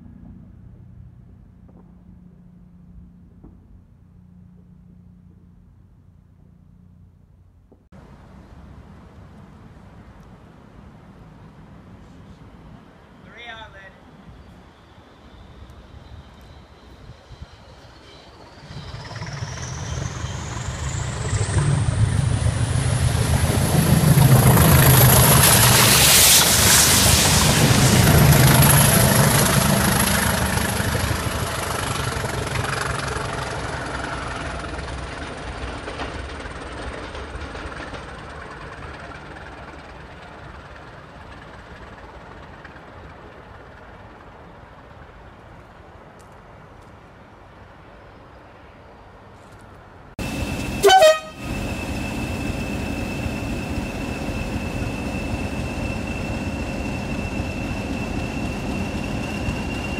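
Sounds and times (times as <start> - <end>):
diesel train passing: 0.0 - 59.9
high wheel squeal: 12.4 - 33.8, 50.2 - 59.9
train horn toot: 50.8 - 51.6.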